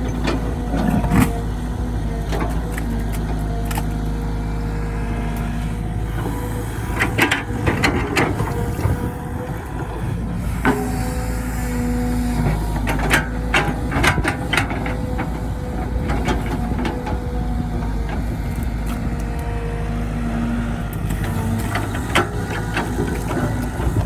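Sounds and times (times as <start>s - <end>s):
heavy diesel machinery running: 0.0s - 24.0s
sharp clanks and knocks: 10.6s - 11.2s.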